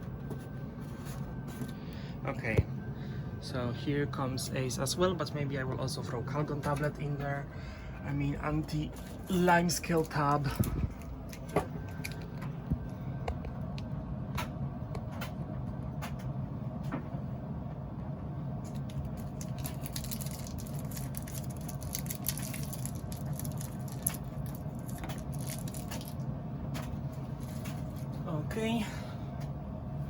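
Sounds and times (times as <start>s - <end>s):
low machine hum: 0.0s - 30.0s
packaging clicks and crackles: 8.6s - 13.0s, 18.7s - 26.2s.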